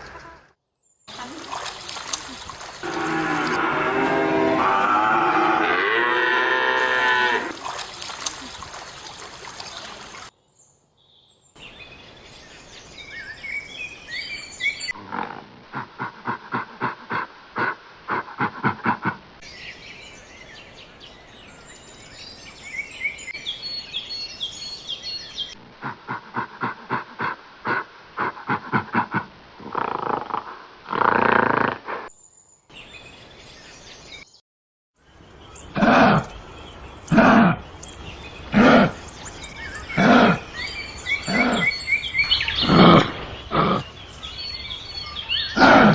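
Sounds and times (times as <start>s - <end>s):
long loud animal calls: 41.2s - 41.8s.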